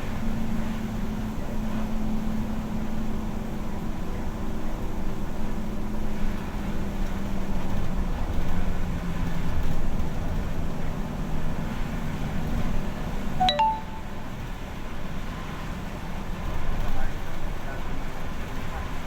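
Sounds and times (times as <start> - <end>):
short electronic chime: 13.4 - 14.1.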